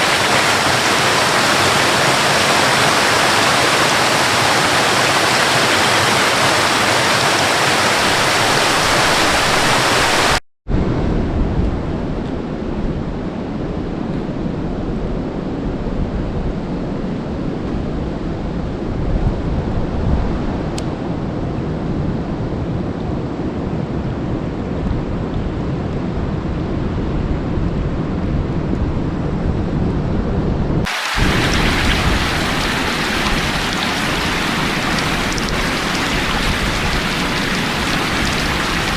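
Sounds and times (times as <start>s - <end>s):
waterfall rushing: 0.0s - 10.4s, 30.9s - 38.9s
deep dull rushing: 31.0s - 38.9s.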